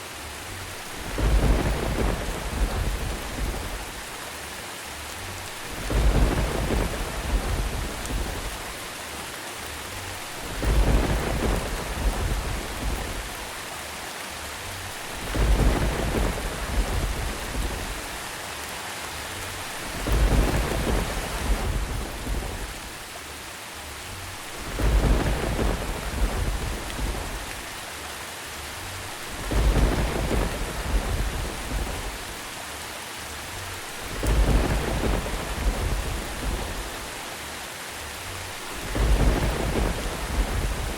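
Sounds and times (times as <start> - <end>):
steady rain falling: 0.0 - 40.9
rolls of thunder: 1.0 - 3.8, 5.8 - 8.6, 15.2 - 18.1, 19.9 - 22.8, 24.7 - 27.5, 29.4 - 32.3, 34.1 - 37.0, 38.8 - 40.9.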